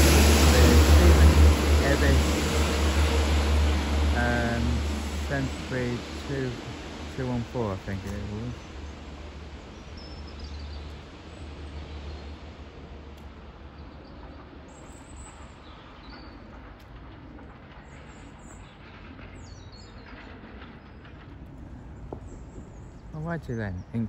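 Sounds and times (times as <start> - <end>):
station background noise: 0.0 - 9.5
passing train rumble: 0.0 - 24.0
small birds chirping: 7.2 - 12.4.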